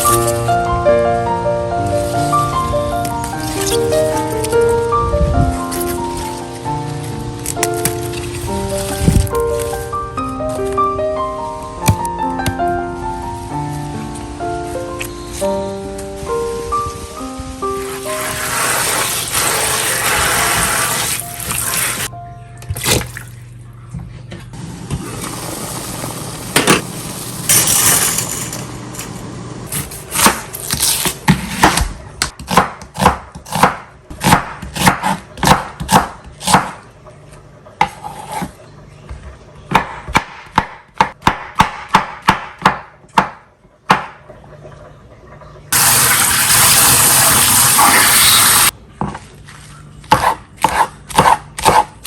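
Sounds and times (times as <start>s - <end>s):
knife chopping on cutting board: 31.3s - 36.8s, 50.1s - 52.0s.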